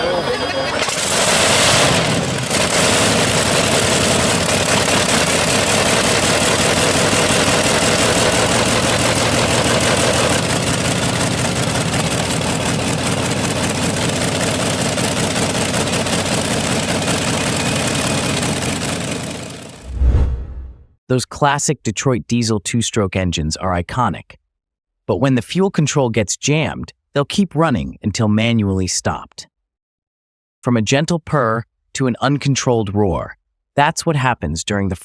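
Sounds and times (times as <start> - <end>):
large engine running: 0.0 - 19.8.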